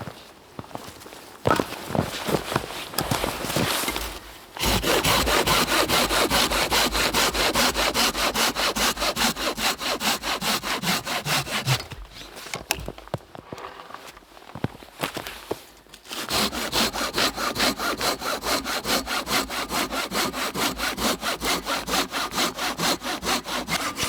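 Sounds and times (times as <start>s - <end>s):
rustling handling noises: 0.0s - 4.6s
hand saw cutting wood: 3.5s - 12.8s, 16.0s - 24.0s.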